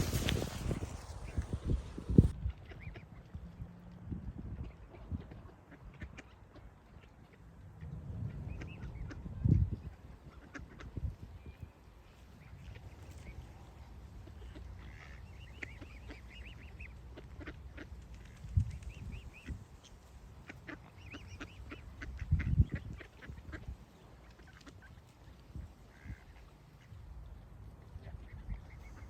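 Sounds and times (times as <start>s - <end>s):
birds calling: 11.3s - 27.4s.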